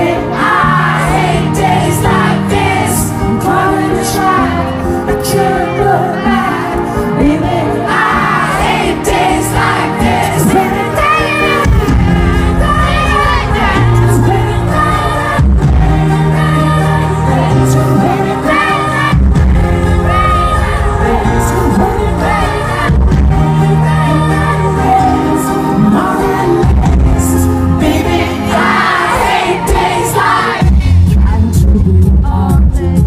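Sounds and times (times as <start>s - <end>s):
lead singer's voice: 0.0s - 33.0s
live pop band playing: 0.0s - 33.0s.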